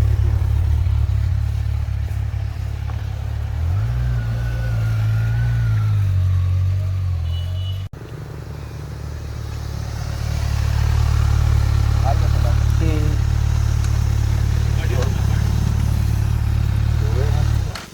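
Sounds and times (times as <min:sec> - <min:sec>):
vehicle engine running: 0:00.0 - 0:17.9.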